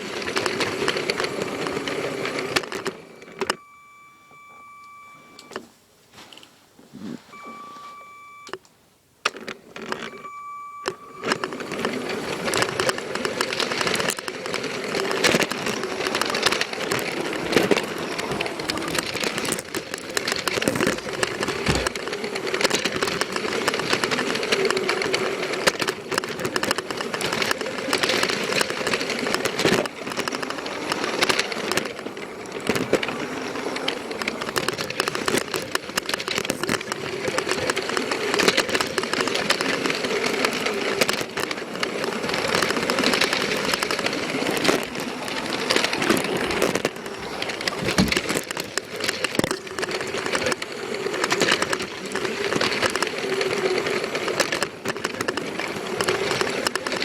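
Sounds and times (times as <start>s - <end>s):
machine running with a rattle: 0.0s - 5.6s, 9.2s - 57.0s
short beeps: 3.0s - 5.7s, 7.2s - 8.7s, 9.9s - 12.1s.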